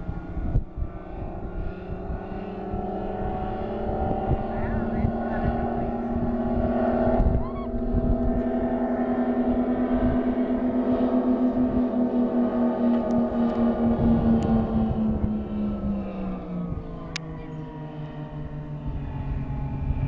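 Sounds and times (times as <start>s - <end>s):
blimp engines droning: 0.0s - 20.0s
wind rumbling on microphone: 0.0s - 20.0s.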